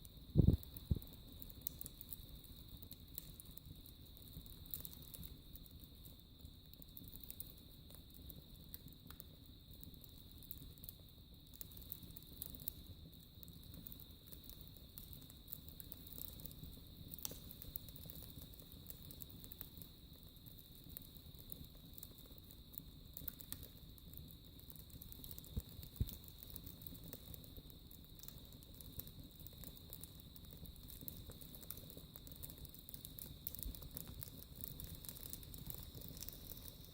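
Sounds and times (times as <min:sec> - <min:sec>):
wood fire crackling: 0:00.0 - 0:36.9
fire low rustle: 0:00.1 - 0:01.4.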